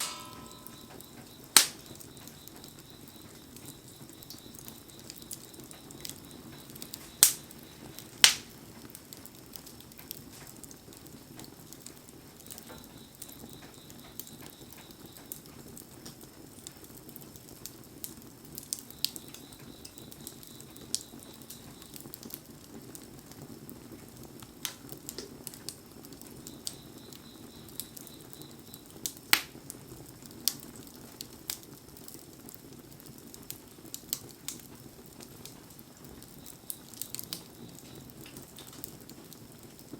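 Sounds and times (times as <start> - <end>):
low hiss: 0.0 - 8.8
bonfire crackling and popping: 0.0 - 39.9.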